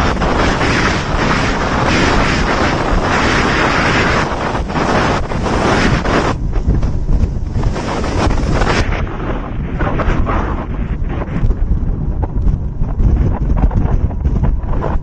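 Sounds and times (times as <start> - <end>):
sea rushing: 0.0 - 13.8
wind buffeting microphone: 0.0 - 15.0.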